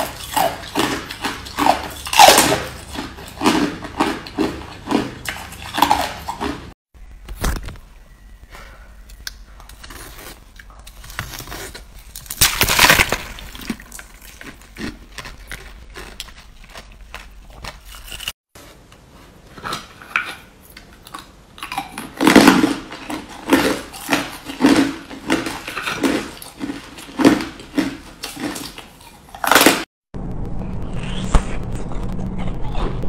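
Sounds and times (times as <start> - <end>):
ice being chewed: 0.0 - 6.8, 9.1 - 18.4, 19.5 - 29.9.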